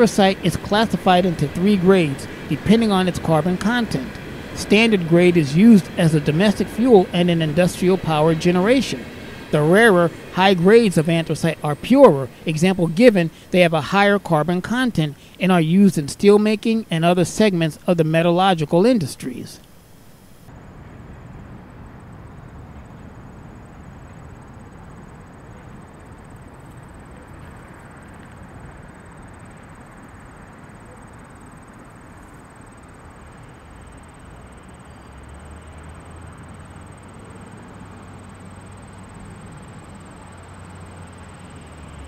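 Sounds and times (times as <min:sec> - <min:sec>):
low hum: 0:00.0 - 0:17.9
train wheels on track: 0:00.0 - 0:20.1.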